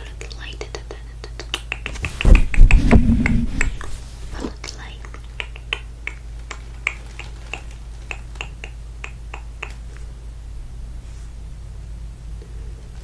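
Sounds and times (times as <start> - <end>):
low hum: 2.0 - 4.5.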